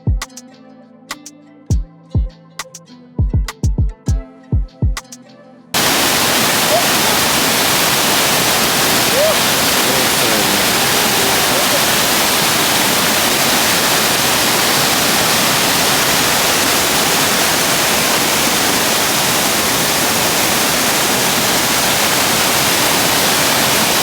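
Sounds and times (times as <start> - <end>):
waterfall rushing: 5.8 - 24.0.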